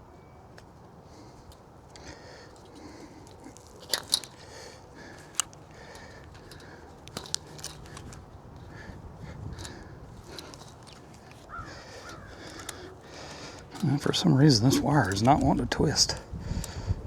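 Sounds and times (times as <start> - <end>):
wire scraping and clicking: 0.6 - 16.9
wire snapping: 1.4 - 16.8.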